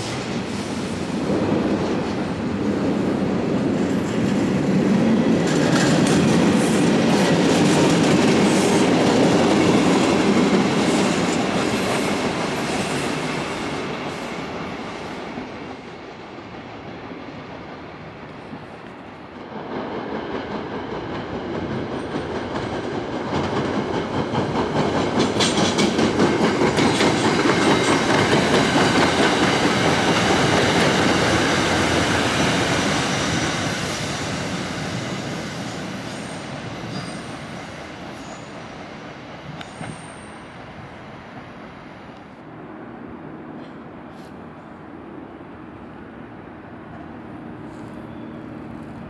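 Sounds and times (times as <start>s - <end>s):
train wheels clicking over rail joints: 0.0s - 17.3s, 18.5s - 38.2s
high wheel squeals: 32.3s - 40.7s, 45.9s - 49.0s.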